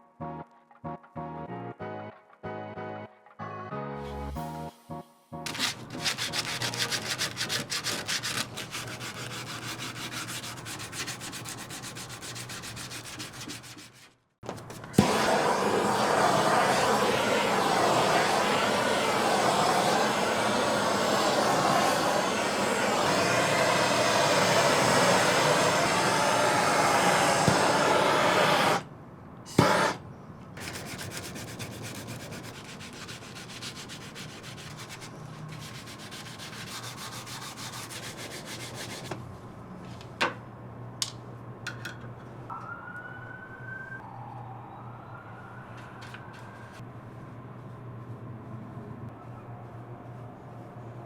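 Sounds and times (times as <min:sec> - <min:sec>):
wood being sanded by hand: 0:05.5 - 0:14.1, 0:29.5 - 0:30.0, 0:30.6 - 0:39.1.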